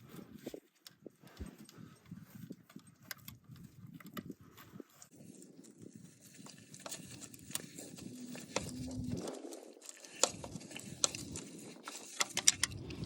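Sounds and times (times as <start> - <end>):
metallic clicks of hand tools: 12.0 - 13.0.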